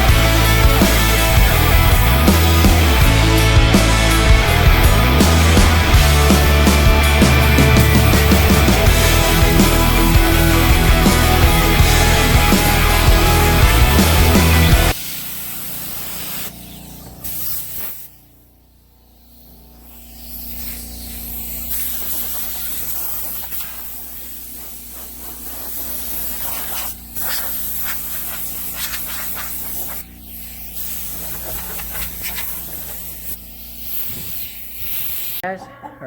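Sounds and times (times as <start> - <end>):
hissing rush of air: 19.1 - 35.4.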